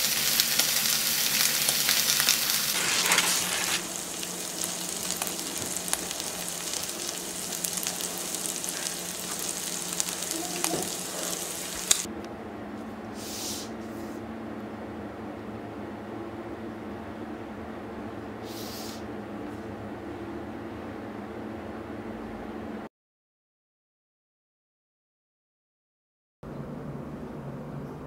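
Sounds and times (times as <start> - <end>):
meat sizzling and crackling in oil: 0.0 - 12.1.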